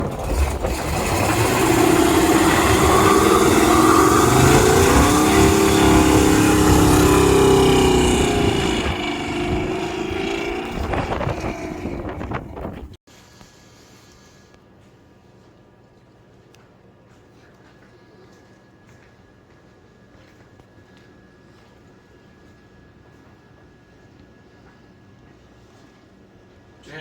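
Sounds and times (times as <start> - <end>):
small engine revving past: 0.0 - 13.0.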